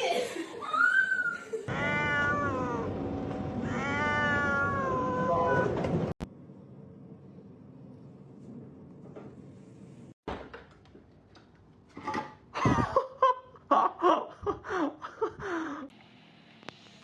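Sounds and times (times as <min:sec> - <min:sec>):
person laughing: 0:12.6 - 0:15.9.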